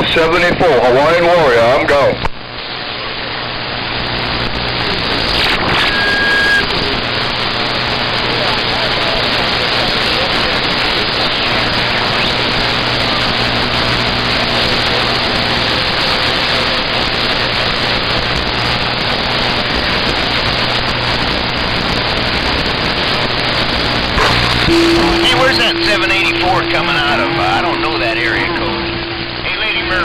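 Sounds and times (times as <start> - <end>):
radio static hiss: 0.0 - 30.0
faint low hum: 23.6 - 30.0.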